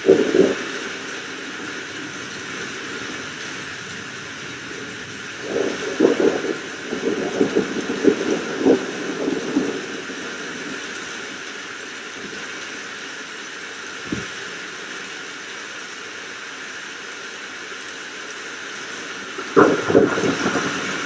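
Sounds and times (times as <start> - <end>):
thunder cracks and rumbles: 0.0 - 11.5, 19.3 - 21.0
rain hiss: 0.0 - 21.0.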